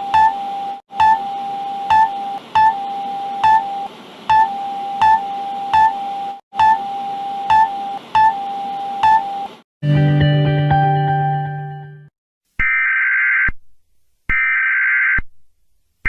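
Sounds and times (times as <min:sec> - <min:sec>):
emergency alert tone: 0:00.0 - 0:09.6
short high beeps: 0:01.0 - 0:06.0, 0:06.6 - 0:06.9, 0:07.5 - 0:09.5.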